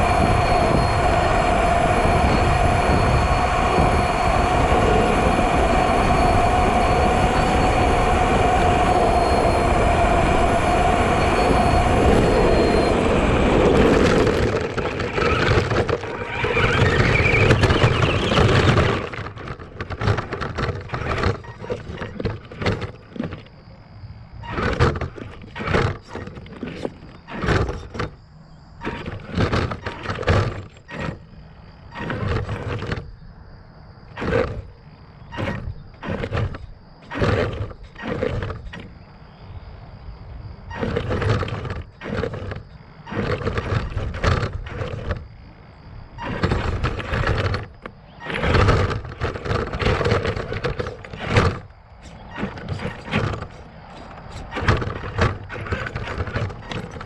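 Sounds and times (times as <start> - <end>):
faint steady high tone: 0.0 - 15.3
rc truck motor surging: 0.0 - 23.5, 40.7 - 45.3, 46.2 - 57.0.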